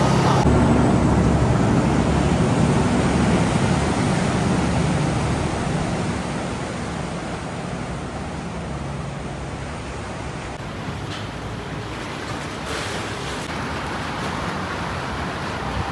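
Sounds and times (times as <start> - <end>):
boat engine running: 0.0 - 10.6
water noise: 0.0 - 15.9.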